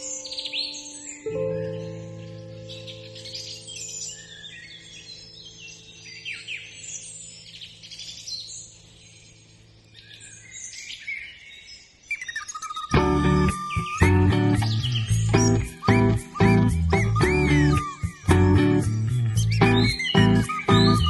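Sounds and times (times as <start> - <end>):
small birds chirping: 0.0 - 21.0
low musical drone: 13.0 - 21.0.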